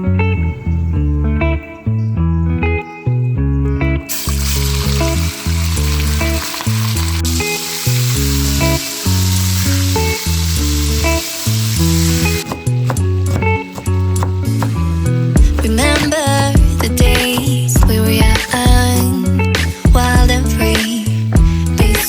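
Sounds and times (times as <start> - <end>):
background music with bass: 0.0 - 22.0
food sizzling in a pan: 4.1 - 15.3.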